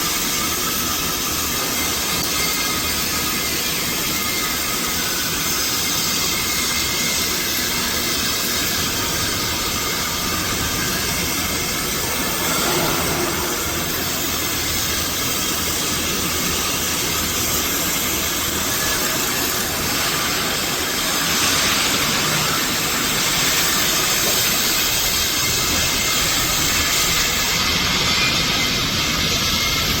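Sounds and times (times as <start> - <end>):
welding arc crackling hiss: 0.0 - 27.6.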